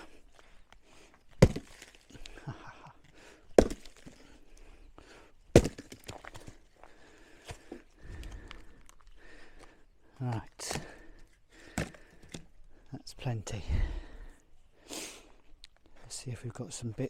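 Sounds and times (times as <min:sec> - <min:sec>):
axe chopping logs: 0:01.2 - 0:02.4, 0:03.0 - 0:04.4, 0:05.4 - 0:06.7, 0:10.6 - 0:12.5.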